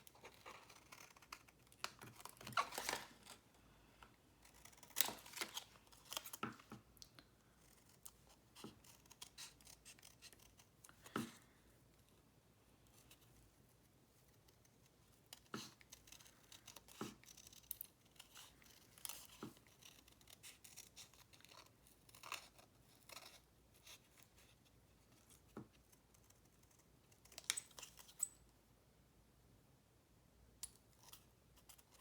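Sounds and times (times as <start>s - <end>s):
paper rustling: 1.7s - 3.5s, 4.7s - 6.8s
scissors snipping paper: 4.4s - 6.8s.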